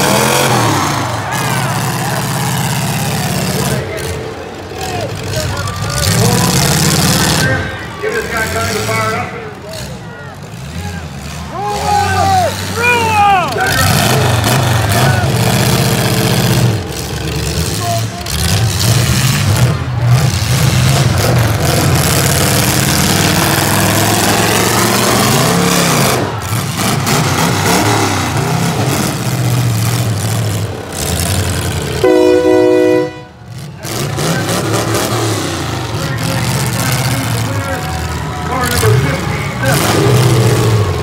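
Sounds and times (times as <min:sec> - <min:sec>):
car engines running hard: 0:00.0 - 0:41.0
horn blast: 0:32.0 - 0:33.4.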